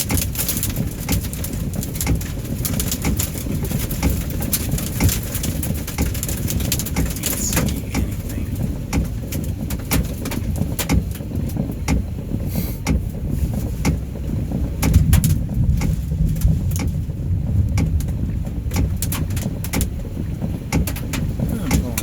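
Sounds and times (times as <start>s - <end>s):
hail knocking on car roof: 0.0s - 22.0s
wind and downpour rumble: 0.0s - 22.0s.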